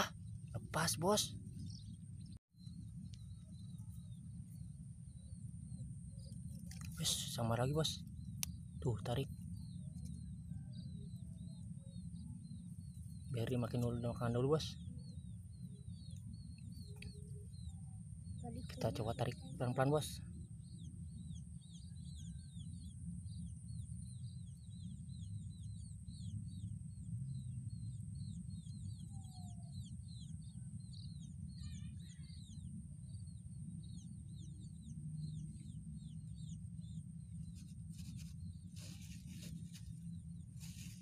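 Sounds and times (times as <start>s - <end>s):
small bird chirping: 0.0s - 41.0s
brief rustles: 40.6s - 41.0s.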